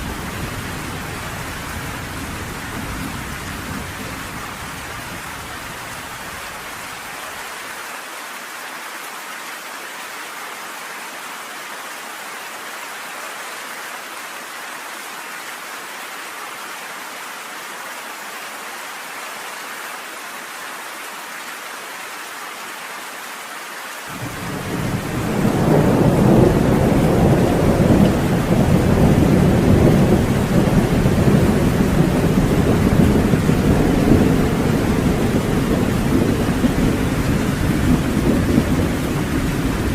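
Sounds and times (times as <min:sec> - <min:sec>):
steady rain falling: 0:00.0 - 0:39.9
deep thunder rumble: 0:24.2 - 0:39.9.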